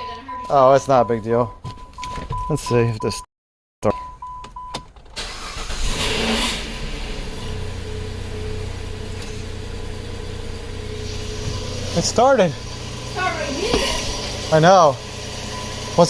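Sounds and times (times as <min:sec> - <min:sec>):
car engine cranking and idling: 0:04.2 - 0:16.0.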